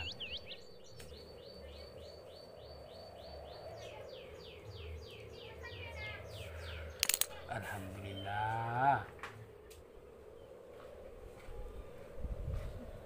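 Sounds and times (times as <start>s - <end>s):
bird whistling: 0.0s - 1.0s.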